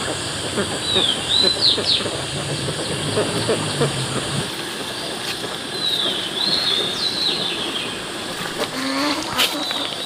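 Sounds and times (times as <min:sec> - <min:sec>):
steady rushing noise: 0:00.0 - 0:10.0
high whistling bird calls: 0:00.8 - 0:08.3.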